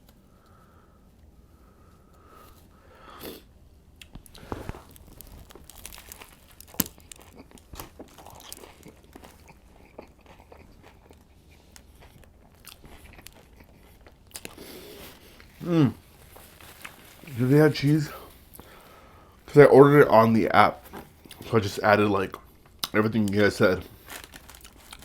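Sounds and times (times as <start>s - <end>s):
person chewing crunchy food: 3.2s - 19.2s, 23.8s - 25.0s.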